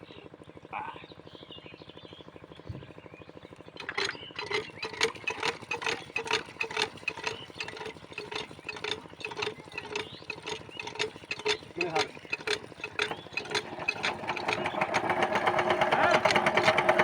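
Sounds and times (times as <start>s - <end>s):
diesel engine pulsing: 3.2s - 17.0s
rapid metallic clacking of crank: 3.8s - 17.0s.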